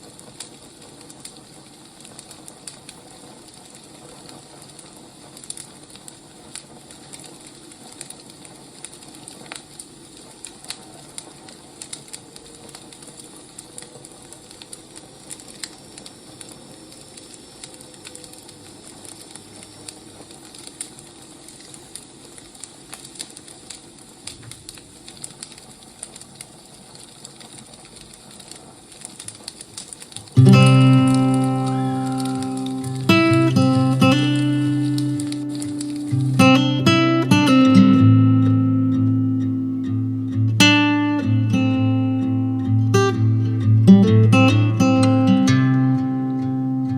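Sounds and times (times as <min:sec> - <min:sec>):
wood fire crackling: 0:00.0 - 0:46.9
acoustic guitar music: 0:30.4 - 0:46.9.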